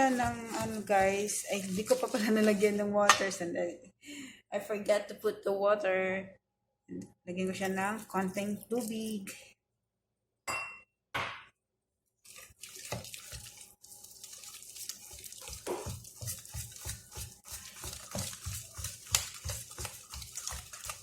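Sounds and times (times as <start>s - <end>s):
batter slapping and squelching: 0.0s - 2.9s, 7.6s - 9.3s, 12.2s - 21.0s.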